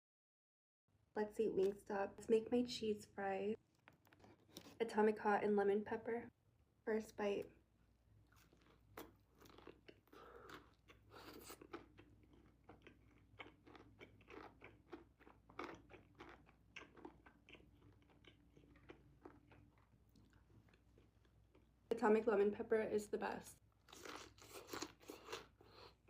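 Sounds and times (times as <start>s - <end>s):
chewing crunches: 8.2s - 21.8s, 23.8s - 26.0s.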